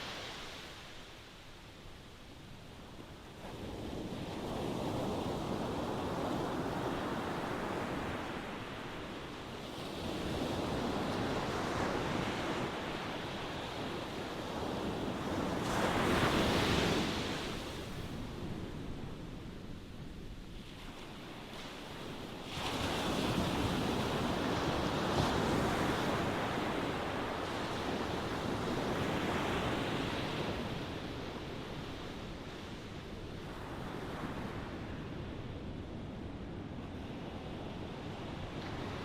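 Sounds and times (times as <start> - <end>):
ocean waves washing ashore: 0.0 - 39.0.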